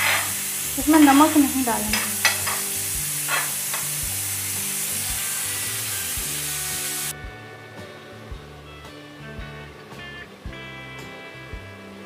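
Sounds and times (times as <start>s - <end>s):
chickpeas sizzling in a pan: 0.0s - 7.2s
background music: 0.0s - 12.0s.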